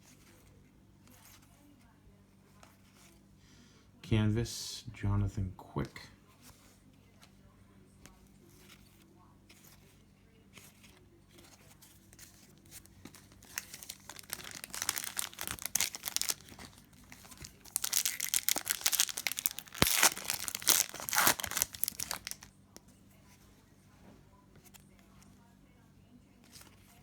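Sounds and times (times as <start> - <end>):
plastic wrapper tearing and crinkling: 12.2 - 22.5.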